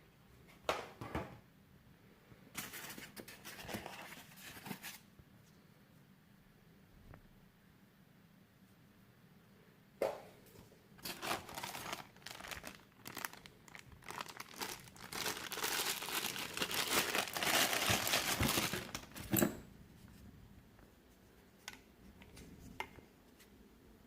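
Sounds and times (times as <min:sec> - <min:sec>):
plastic packaging crinkling: 0:11.0 - 0:19.4.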